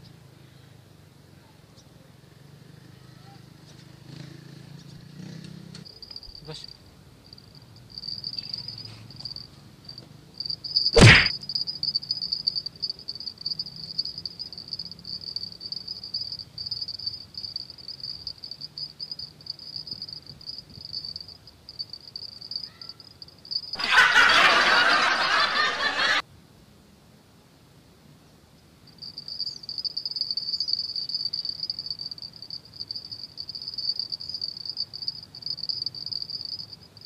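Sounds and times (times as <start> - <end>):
insect chirring: 5.8 - 23.8, 28.8 - 37.0
sharp loud click: 11.0 - 11.3.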